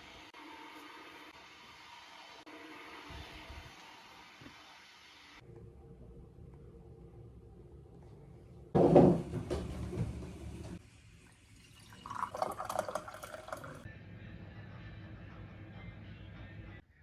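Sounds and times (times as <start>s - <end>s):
water running and pouring: 8.8s - 13.9s.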